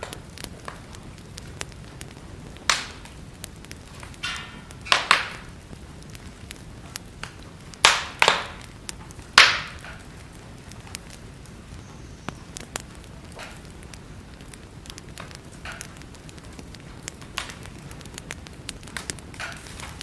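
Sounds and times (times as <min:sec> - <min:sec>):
loud sharp pops: 0:00.0 - 0:10.2, 0:11.8 - 0:20.0
wood fire crackling: 0:00.0 - 0:20.0.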